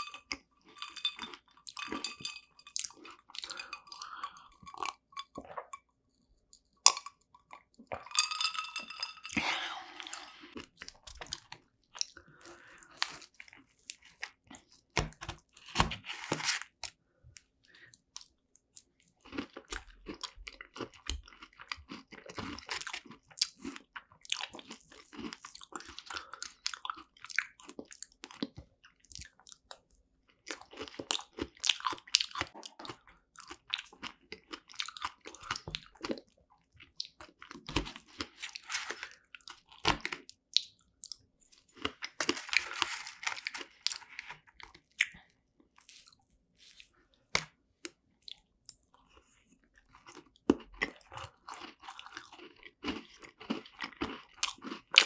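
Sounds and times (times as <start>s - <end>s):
chewing and biting: 18.2s - 55.0s.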